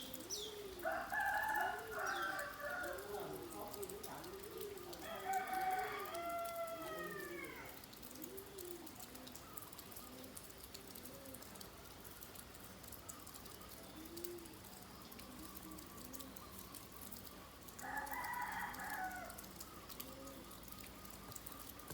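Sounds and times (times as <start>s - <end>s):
light rain: 0.0s - 21.9s
rooster crowing: 0.8s - 3.2s, 5.0s - 7.7s, 17.8s - 19.5s.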